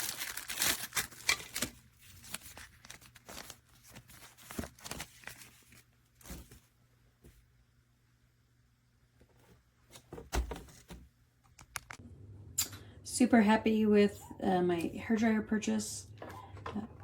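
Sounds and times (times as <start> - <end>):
rustling and crinkling handling: 0.0 - 7.5.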